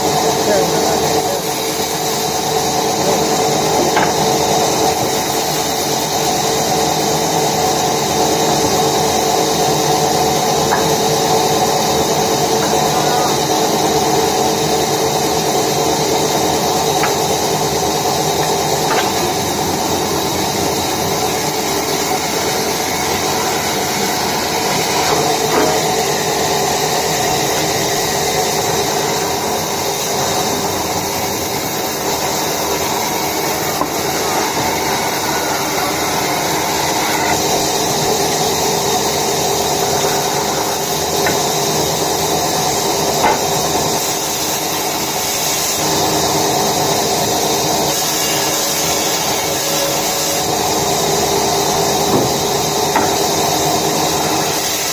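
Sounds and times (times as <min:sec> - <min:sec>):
woodworking machine running: 0:00.0 - 0:54.9.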